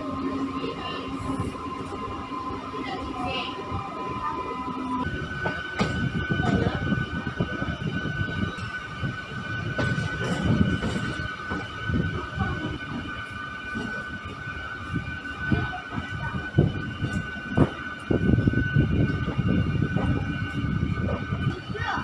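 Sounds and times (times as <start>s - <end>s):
train rumbling on rails: 0.0s - 22.0s
train wheel knocks: 5.4s - 6.8s, 17.0s - 17.8s.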